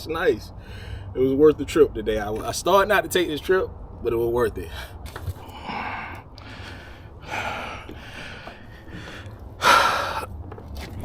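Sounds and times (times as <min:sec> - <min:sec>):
man breathing hard: 0:00.6 - 0:01.2, 0:04.7 - 0:10.3.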